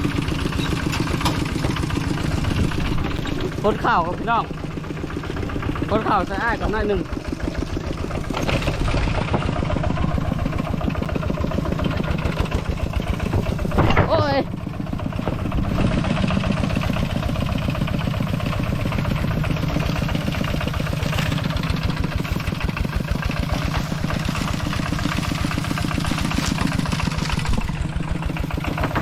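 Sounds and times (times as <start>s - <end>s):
small engine running: 0.0s - 29.0s.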